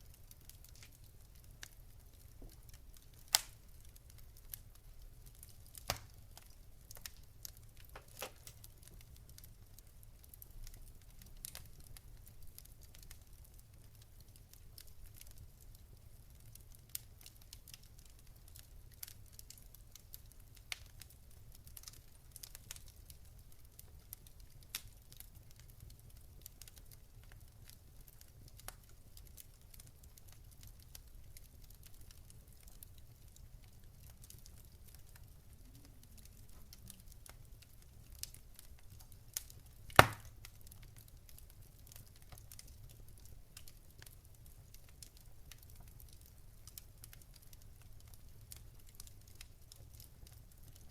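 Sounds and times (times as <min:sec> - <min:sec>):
wood fire crackling: 0:00.0 - 0:50.9
loud sharp pop: 0:40.0 - 0:40.3.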